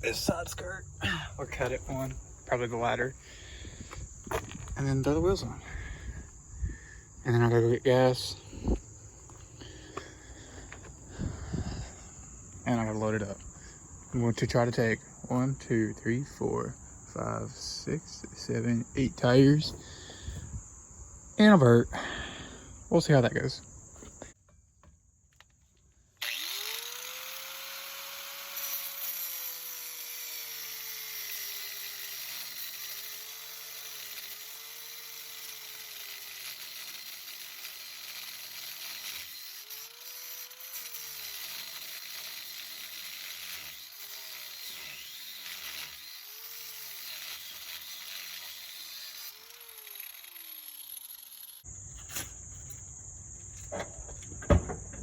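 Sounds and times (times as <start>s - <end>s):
power tool motor running: 26.2s - 51.7s.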